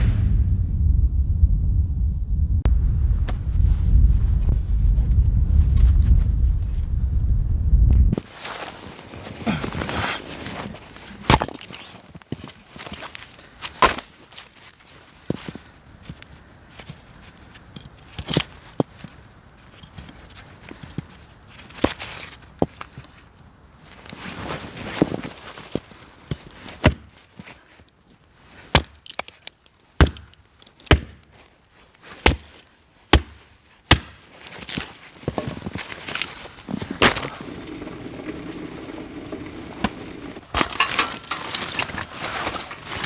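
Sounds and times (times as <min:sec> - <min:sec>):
firewood being chopped: 0:11.2 - 0:11.7, 0:26.8 - 0:27.1, 0:28.7 - 0:29.3, 0:30.0 - 0:31.3, 0:32.2 - 0:37.7.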